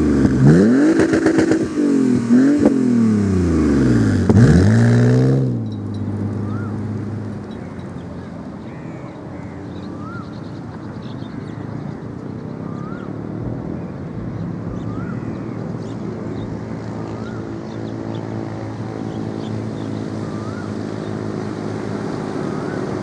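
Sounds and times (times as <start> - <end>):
car engine exhaust note: 0.0 - 8.0.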